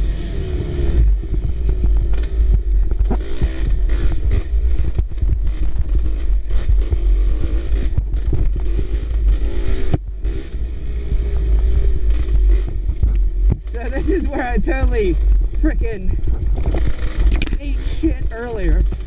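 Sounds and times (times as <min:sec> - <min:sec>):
dirt bike engine revving: 0:00.0 - 0:19.0
low rumble: 0:00.0 - 0:19.0
wind on microphone: 0:00.0 - 0:19.0
knocks from bumps: 0:01.2 - 0:07.1, 0:16.2 - 0:17.6.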